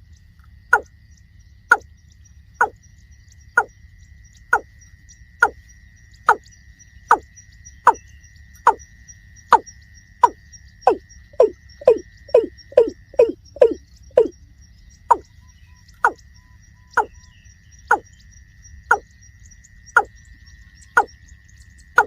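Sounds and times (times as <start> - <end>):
bird hollow falling notes: 10.2 - 14.3.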